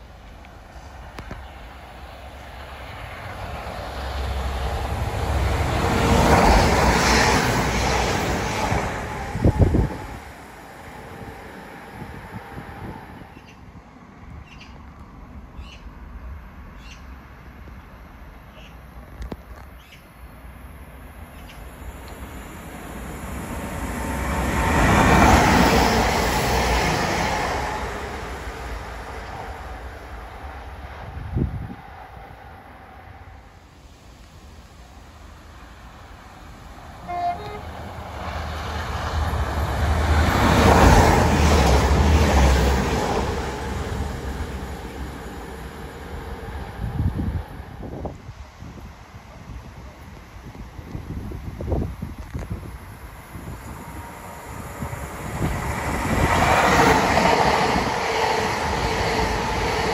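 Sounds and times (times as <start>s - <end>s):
diesel train passing: 0.0s - 59.9s
wind buffeting microphone: 2.5s - 13.5s, 22.9s - 33.4s, 37.1s - 59.9s.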